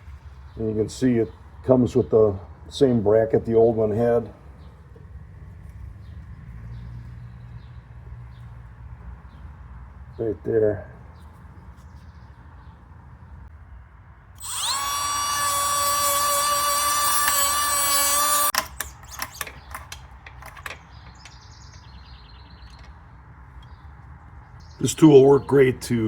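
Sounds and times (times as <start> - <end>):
rotary tool whining: 14.4 - 21.4
clicks and knocks: 18.5 - 21.9.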